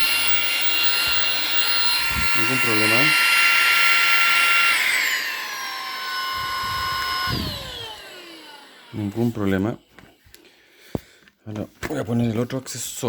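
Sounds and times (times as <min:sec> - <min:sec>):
vacuum motor whining: 0:00.0 - 0:10.4.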